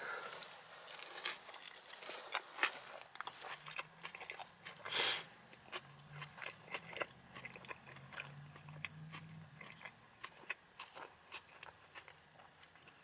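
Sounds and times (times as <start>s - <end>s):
faint low hum: 0.0s - 13.0s
person chewing food: 0.0s - 13.0s
food crunch: 0.1s - 13.0s.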